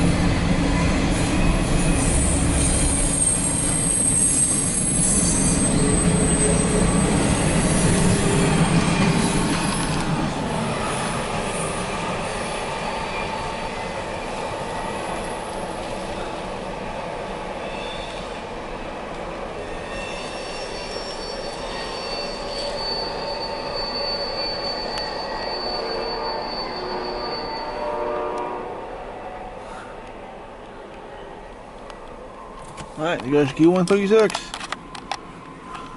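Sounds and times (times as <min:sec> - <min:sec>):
freight cars rumbling on rails: 0:00.0 - 0:27.6
wheels squealing: 0:01.0 - 0:15.8, 0:17.6 - 0:18.4, 0:19.6 - 0:27.8.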